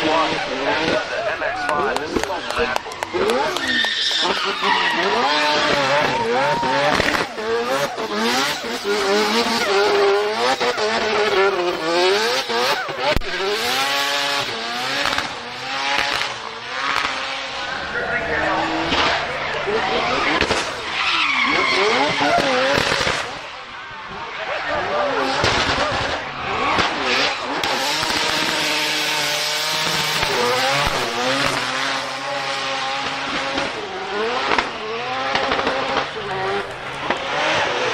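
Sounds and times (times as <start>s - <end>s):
car engine revving: 0.0s - 37.9s
tyres squealing: 2.3s - 10.0s, 17.5s - 23.4s
sharp crack: 5.0s - 7.4s, 15.0s - 17.2s, 18.8s - 21.0s, 22.2s - 23.4s.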